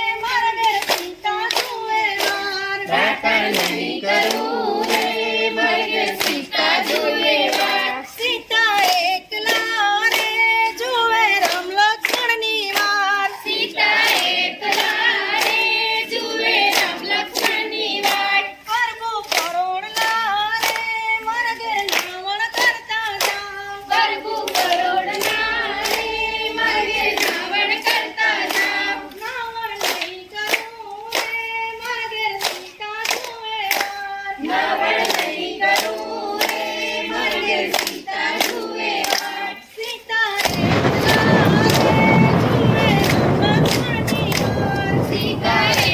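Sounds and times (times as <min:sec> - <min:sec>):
hand claps: 0:00.6 - 0:26.2, 0:27.2 - 0:39.3, 0:40.4 - 0:45.9
group singing: 0:01.0 - 0:11.4, 0:13.2 - 0:18.7, 0:23.7 - 0:29.2, 0:34.2 - 0:39.8, 0:40.4 - 0:45.9.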